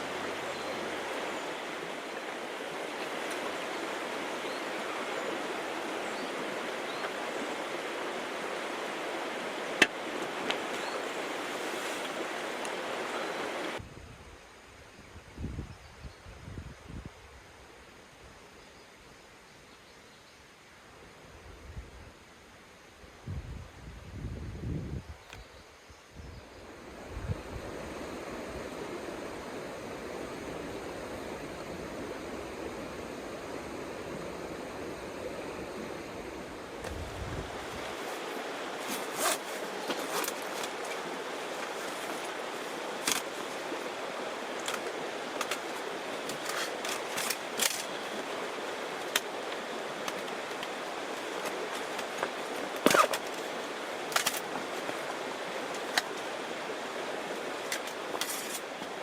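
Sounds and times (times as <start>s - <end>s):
surf rushing: 26.6s - 49.1s.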